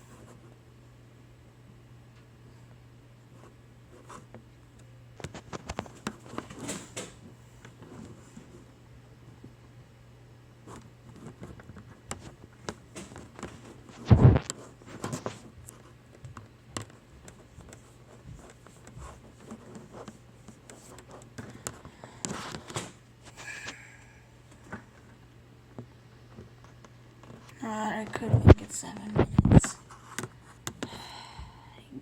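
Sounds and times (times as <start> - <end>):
low steady hum: 0.0 - 32.0
small clicks and rustles: 4.2 - 8.6, 10.7 - 23.0.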